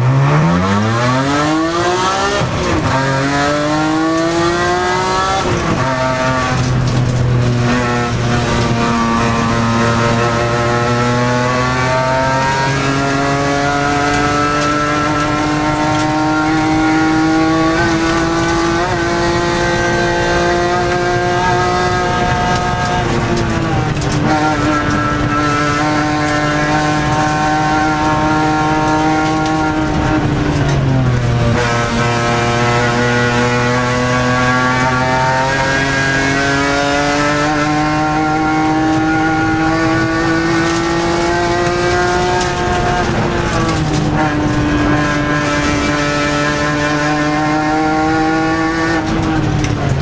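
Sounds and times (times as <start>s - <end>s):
race car engine accelerating: 0.0s - 50.0s.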